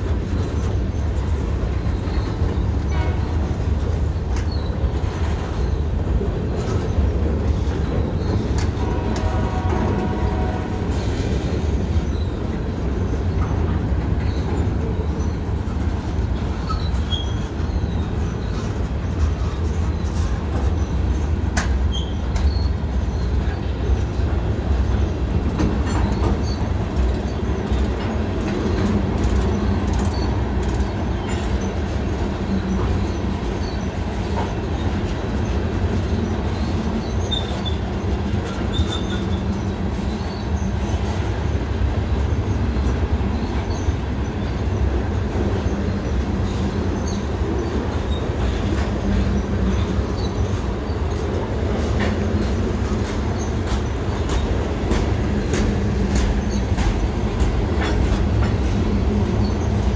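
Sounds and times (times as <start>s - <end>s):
train wheels rumbling on rail: 0.0s - 59.9s
wheel squeals: 16.4s - 21.1s, 21.8s - 23.7s, 28.7s - 41.2s.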